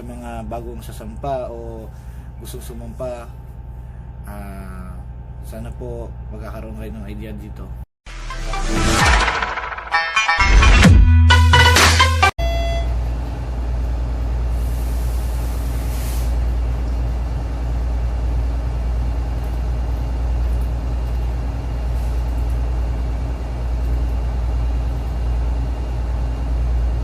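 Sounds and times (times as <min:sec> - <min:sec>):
large diesel engine droning: 0:12.4 - 0:27.0
hiss of air: 0:14.5 - 0:16.4.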